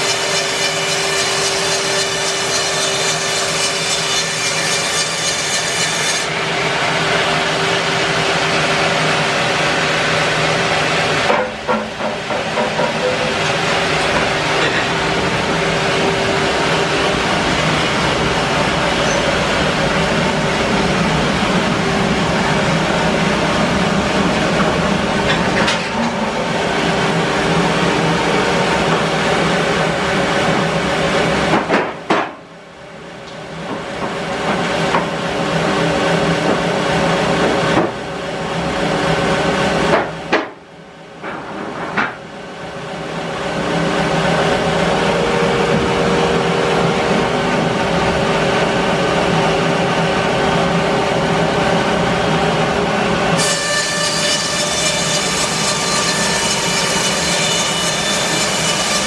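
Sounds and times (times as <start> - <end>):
bandsaw mill sawing wood: 0.0 - 11.3, 53.4 - 59.0.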